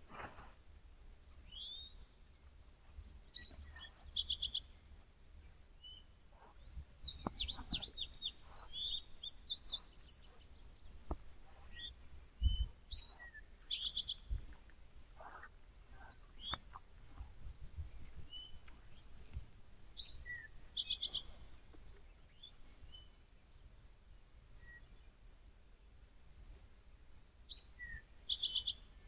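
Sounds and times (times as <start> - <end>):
songbirds chirping and singing: 3.2 - 14.5, 15.2 - 17.3, 20.0 - 23.7, 27.5 - 29.0
soft low thumps: 6.4 - 13.3.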